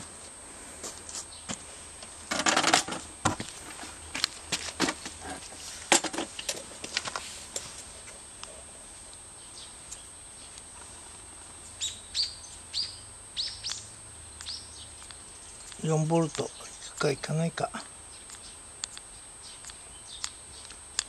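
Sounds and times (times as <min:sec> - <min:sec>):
bird chirping: 0:09.4 - 0:10.6, 0:11.8 - 0:20.8
sharp clicks and taps: 0:14.4 - 0:21.0.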